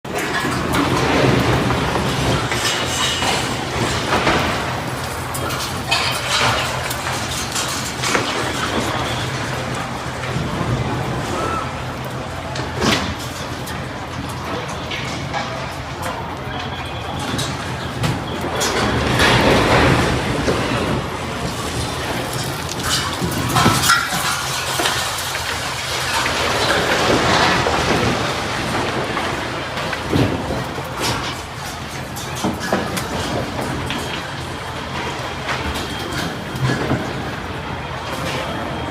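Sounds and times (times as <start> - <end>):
water rushing and splashing: 19.6 - 31.6.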